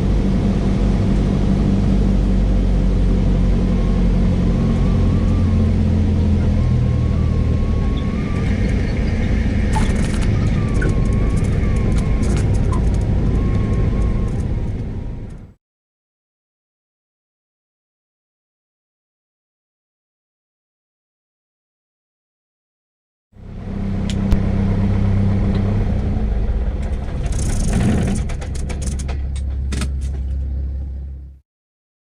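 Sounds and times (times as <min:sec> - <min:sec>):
aircraft engine drone: 0:00.0 - 0:15.6, 0:23.4 - 0:31.4.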